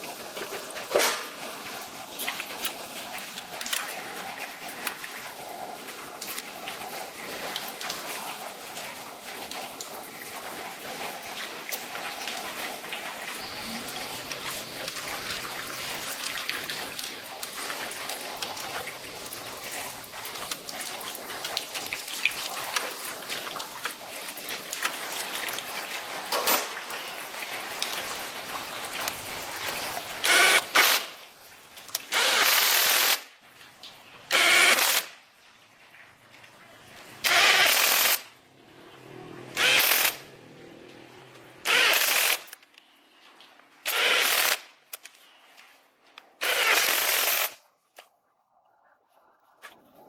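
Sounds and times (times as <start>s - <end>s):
power tool bursts: 30.2s - 31.2s, 32.1s - 33.3s, 34.3s - 35.1s, 37.2s - 38.3s, 39.5s - 40.2s, 41.6s - 42.6s, 43.8s - 44.7s, 46.4s - 47.6s.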